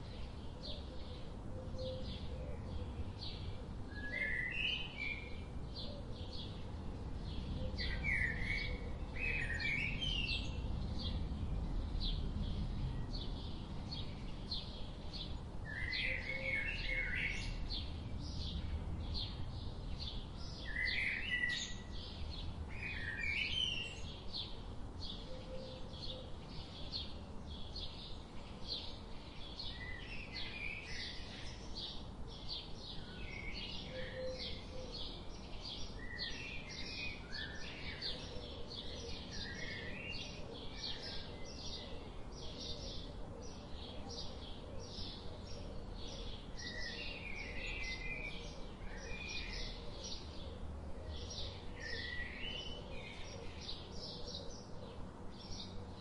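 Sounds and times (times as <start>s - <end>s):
faint low rumble: 10.3s - 15.8s.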